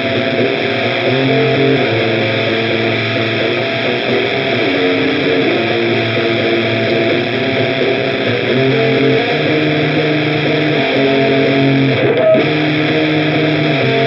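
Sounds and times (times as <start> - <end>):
overdriven electric guitar: 0.0 - 14.0.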